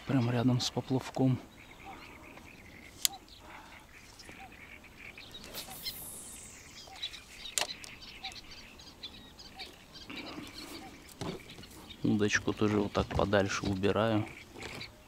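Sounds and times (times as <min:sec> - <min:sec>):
birds chirping: 0:00.0 - 0:15.0
short low bird call: 0:04.3 - 0:07.2.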